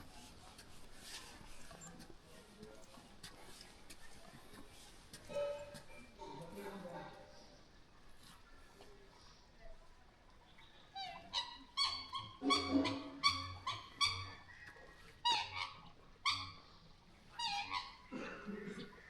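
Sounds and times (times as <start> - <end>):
animal calling: 11.0 - 14.6, 17.3 - 18.1.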